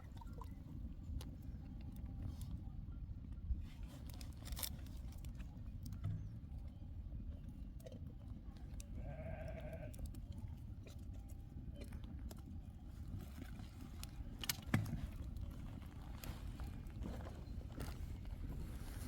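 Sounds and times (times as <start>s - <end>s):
sheep bleating: 9.0s - 9.9s.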